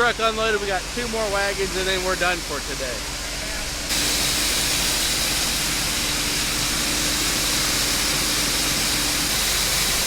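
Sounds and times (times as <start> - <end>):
faint machine hum: 0.0 - 10.0
grain rushing hiss: 3.9 - 10.0.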